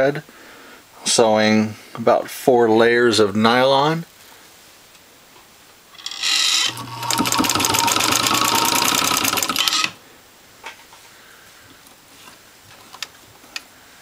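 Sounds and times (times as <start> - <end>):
sewing machine motor hum: 6.0 - 10.0
sewing machine stitching clatter: 6.0 - 10.0.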